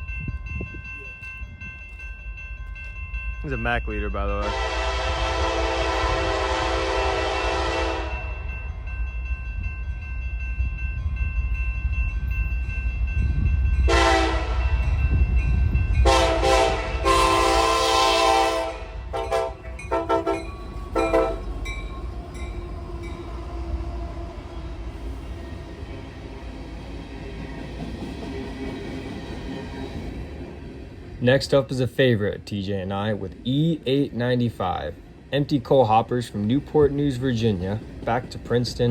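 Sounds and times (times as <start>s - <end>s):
low rumble of passing train: 0.0s - 38.9s
locomotive air horn blasts: 4.4s - 8.4s, 13.9s - 14.7s, 16.0s - 21.5s.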